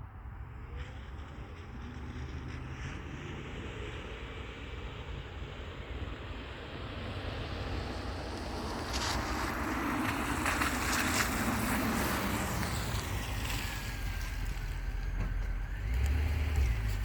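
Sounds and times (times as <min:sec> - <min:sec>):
car engine deep drone: 0:12.2 - 0:17.0.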